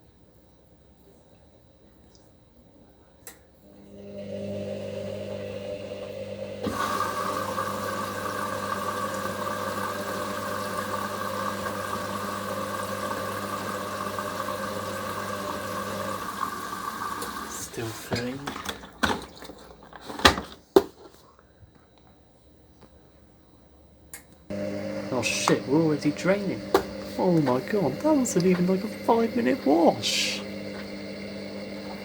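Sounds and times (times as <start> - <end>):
water rushing into machine: 3.8 - 19.6, 24.5 - 32.0.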